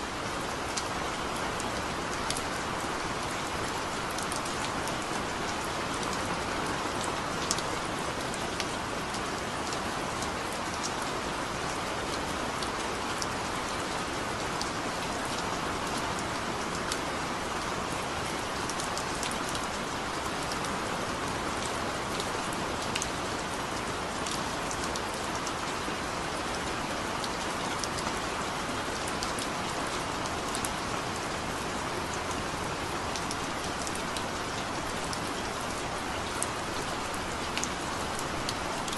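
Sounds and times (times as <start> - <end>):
heavy rain: 0.0 - 38.9
raindrops ticking on a surface: 0.1 - 38.9.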